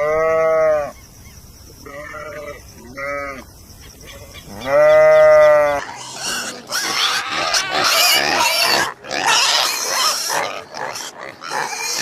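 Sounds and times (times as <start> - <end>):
goat bleating: 1.8 - 3.4, 4.5 - 12.0
harsh animal squeals: 4.0 - 12.0.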